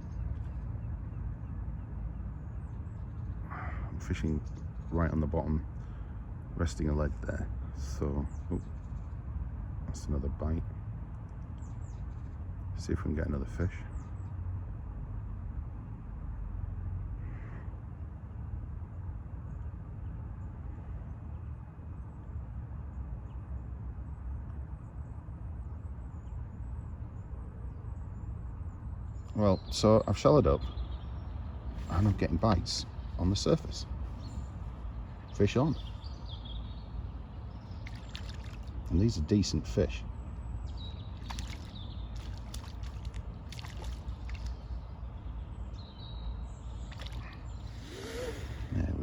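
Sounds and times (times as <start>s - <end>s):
steady low rumble: 0.0s - 49.0s
water trickling: 37.6s - 39.2s, 40.7s - 45.0s, 46.7s - 48.6s
fish splashing at surface: 37.8s - 38.9s, 41.2s - 44.7s, 46.8s - 48.7s.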